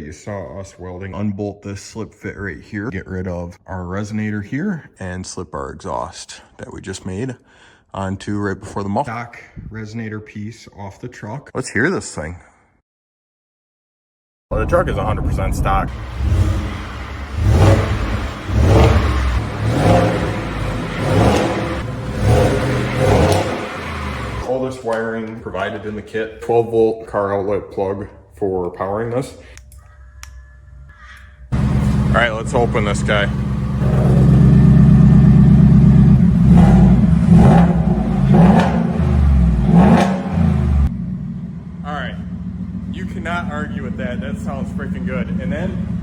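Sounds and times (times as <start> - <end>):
truck engine revving: 15.9 - 24.5, 31.5 - 46.0.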